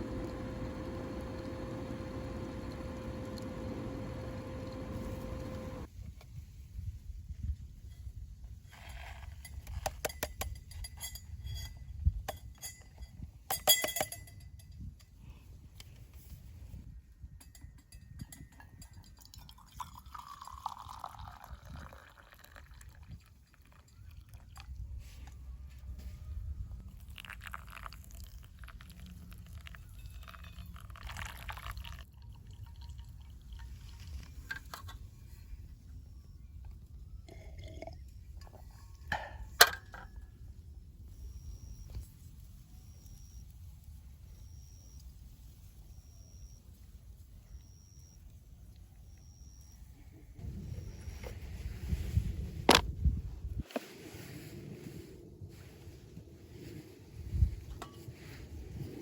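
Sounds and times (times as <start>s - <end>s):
low steady rumble: 0.0s - 5.9s, 49.1s - 53.6s
liquid pouring: 19.5s - 23.1s, 27.1s - 28.9s, 29.5s - 33.9s.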